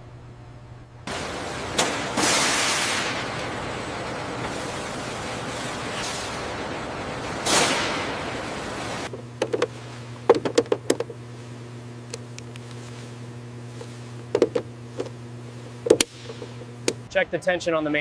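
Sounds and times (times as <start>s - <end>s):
low electrical hum: 0.0s - 18.0s
hiss: 1.1s - 3.3s, 7.3s - 9.1s
sharp clicks and light knocks: 10.3s - 11.2s.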